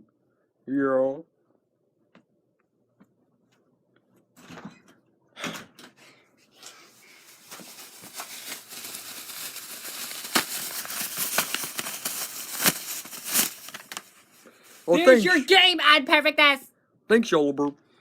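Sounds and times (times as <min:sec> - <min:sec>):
crinkling handling noise: 0:06.7 - 0:15.0.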